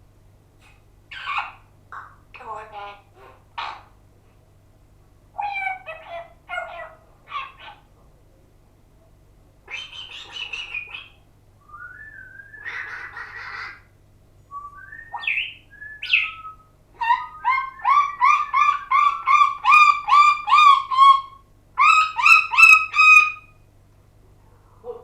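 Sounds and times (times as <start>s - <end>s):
pet bird chirping and whistling: 9.7s - 11.2s, 14.8s - 23.5s.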